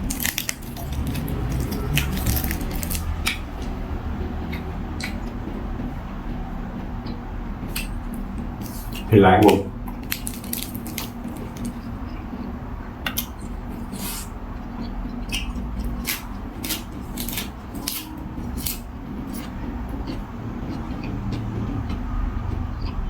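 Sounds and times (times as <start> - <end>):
person eating crunchy food: 0.0 - 3.5, 7.7 - 12.0, 13.1 - 14.3, 15.2 - 21.9.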